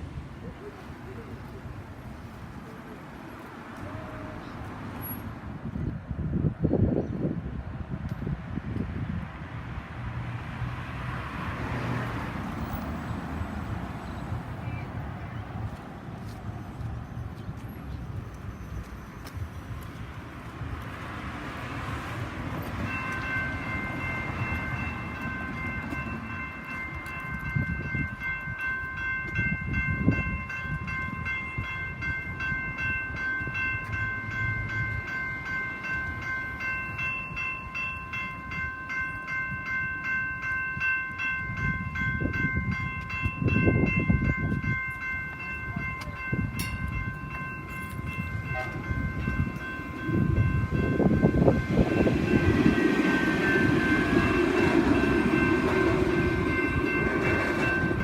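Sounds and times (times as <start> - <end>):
low rumble of passing traffic: 0.0 - 58.0
level-crossing electronic bells: 22.8 - 58.0.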